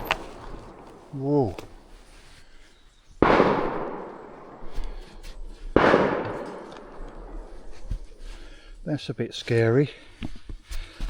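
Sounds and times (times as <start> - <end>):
gunshots: 3.2 - 5.1, 5.7 - 7.8.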